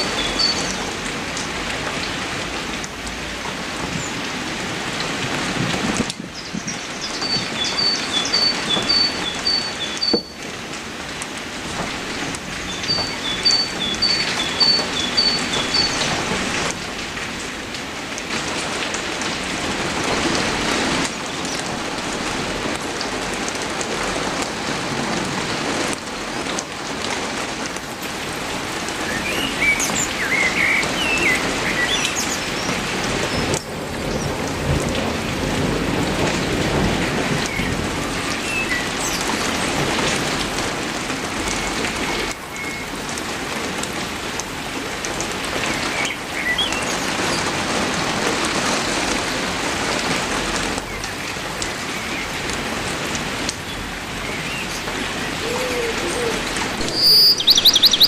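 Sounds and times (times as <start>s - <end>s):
bird chirping: 0.0s - 0.9s, 6.4s - 10.4s, 12.6s - 16.2s, 56.8s - 58.0s
heavy rain falling: 0.0s - 58.0s.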